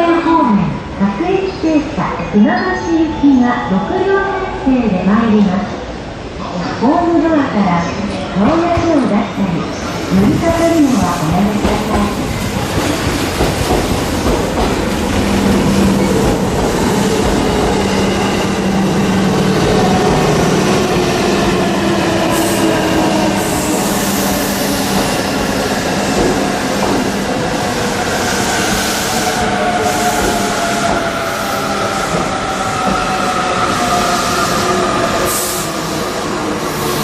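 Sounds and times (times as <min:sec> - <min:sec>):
electric train hum: 0:09.6 - 0:37.0.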